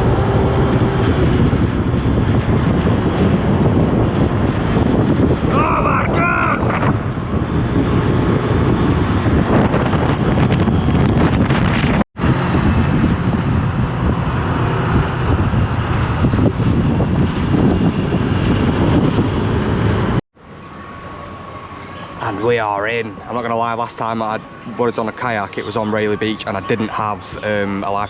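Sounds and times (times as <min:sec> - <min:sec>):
scooter engine: 0:00.0 - 0:05.0
road noise: 0:00.0 - 0:28.0
wind buffeting microphone: 0:00.0 - 0:28.0.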